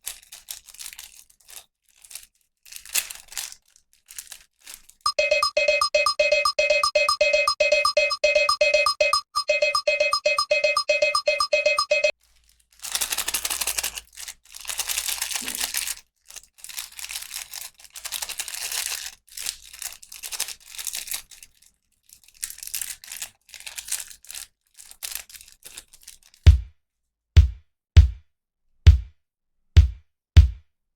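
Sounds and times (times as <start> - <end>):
plastic packaging tearing and crinkling: 0.0 - 5.0, 12.2 - 26.4.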